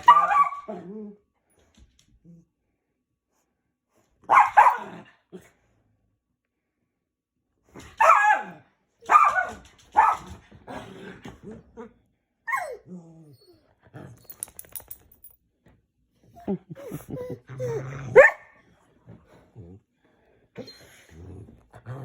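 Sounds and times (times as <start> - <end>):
dogs barking: 0.0 - 0.7, 4.3 - 4.9, 8.0 - 10.4, 18.1 - 18.6.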